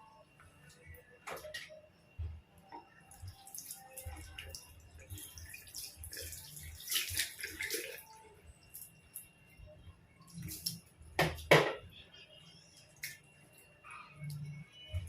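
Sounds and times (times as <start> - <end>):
water splashing and dripping: 3.1 - 9.2, 10.3 - 11.5, 13.0 - 13.3.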